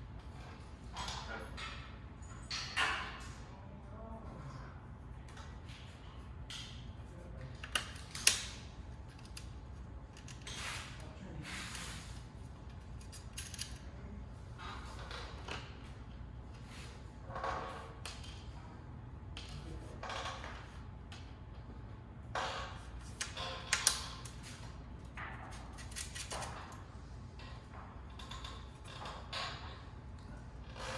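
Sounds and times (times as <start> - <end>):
low steady hum: 0.0 - 17.3.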